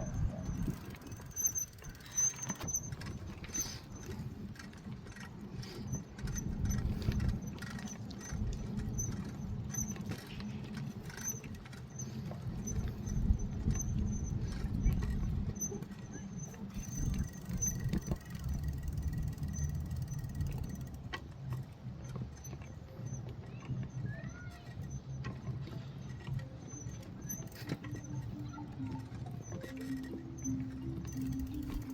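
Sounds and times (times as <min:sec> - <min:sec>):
wind on microphone: 0:00.0 - 0:01.8, 0:02.7 - 0:11.1, 0:12.4 - 0:16.0, 0:16.7 - 0:20.8
faint high squeak: 0:00.0 - 0:04.2, 0:11.1 - 0:20.8, 0:22.4 - 0:31.9
bicycle rolling: 0:00.0 - 0:31.9.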